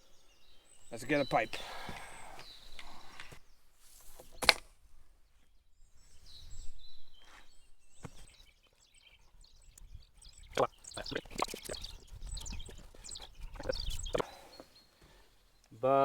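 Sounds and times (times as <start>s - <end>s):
faint bird chirps: 5.3s - 16.0s.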